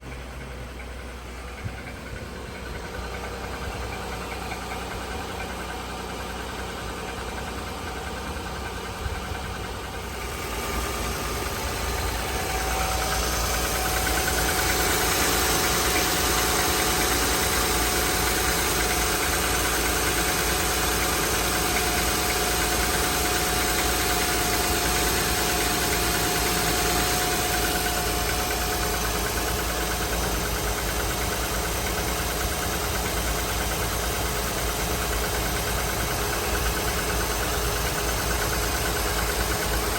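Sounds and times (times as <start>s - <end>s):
car engine idling: 0.0s - 39.9s
engine ticking and knocking: 0.0s - 39.9s
steady whine: 9.6s - 20.0s.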